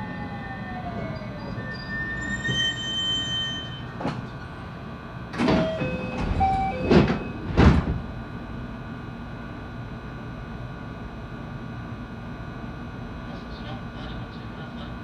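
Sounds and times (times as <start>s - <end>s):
electric train inverter whine: 0.0s - 15.0s
wheel squeals: 1.3s - 3.9s
loud train clacks: 5.4s - 8.1s.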